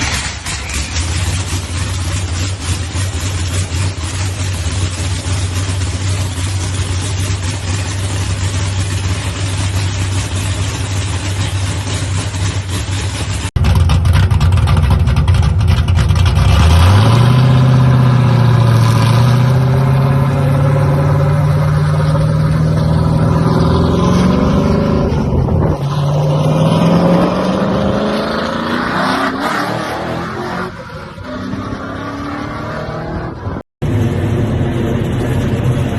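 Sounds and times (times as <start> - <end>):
car engine rough idle: 0.0 - 16.4.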